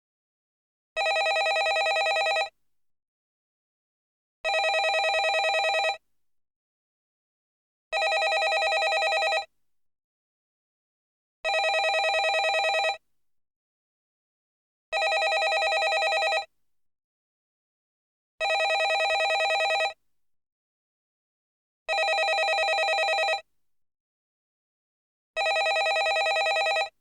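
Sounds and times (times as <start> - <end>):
landline telephone ringing: 1.0 - 2.5, 4.5 - 6.0, 8.0 - 9.5, 11.5 - 13.0, 15.0 - 16.5, 18.4 - 20.0, 21.9 - 23.4, 25.4 - 26.9.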